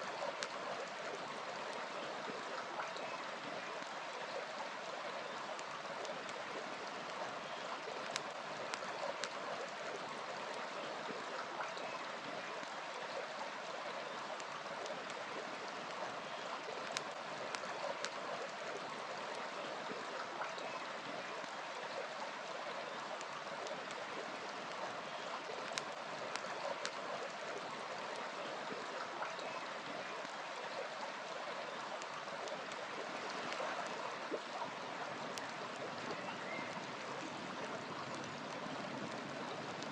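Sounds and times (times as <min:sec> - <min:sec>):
river flowing: 0:00.0 - 0:39.9
wood fire crackling: 0:05.6 - 0:09.4.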